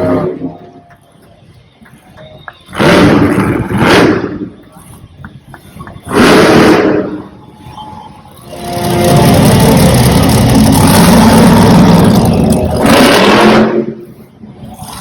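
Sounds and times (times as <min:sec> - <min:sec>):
truck engine revving hard: 0:00.0 - 0:00.6, 0:02.7 - 0:04.6, 0:05.8 - 0:07.4, 0:08.4 - 0:15.0.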